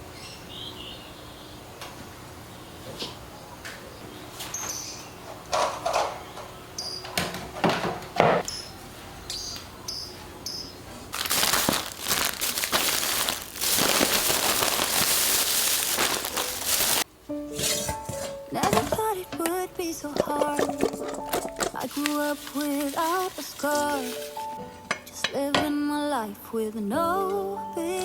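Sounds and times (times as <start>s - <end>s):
handling knocks and clicks: 17.6s - 19.7s.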